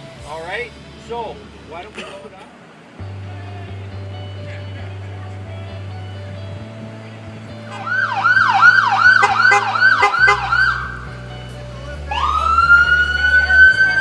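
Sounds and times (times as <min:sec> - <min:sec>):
police siren yelp: 0:07.7 - 0:11.1, 0:12.1 - 0:14.0
police siren wail: 0:07.7 - 0:11.2, 0:12.0 - 0:14.0.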